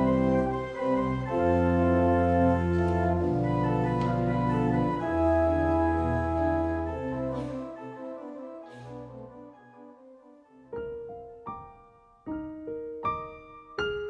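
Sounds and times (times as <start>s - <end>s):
organ playing chords: 0.0s - 10.7s.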